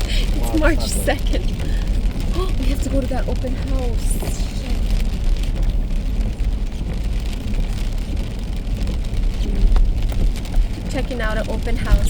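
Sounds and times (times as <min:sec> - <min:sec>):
faint rain patter: 0:00.0 - 0:12.0
road rumble inside car: 0:00.0 - 0:12.0.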